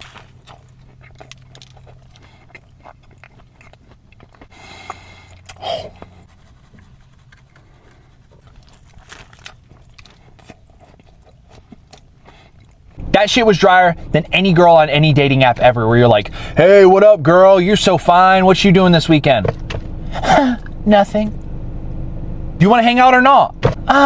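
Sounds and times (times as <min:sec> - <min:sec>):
chewing and biting sandwich: 0:00.0 - 0:13.0.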